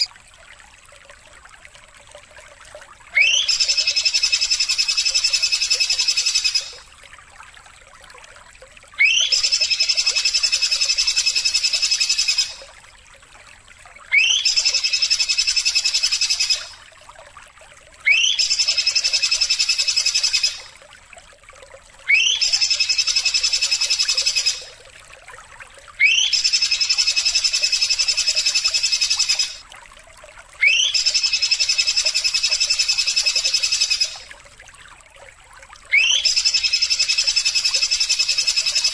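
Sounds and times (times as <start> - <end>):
whistle and buzzy trill call: 35.9 - 38.9.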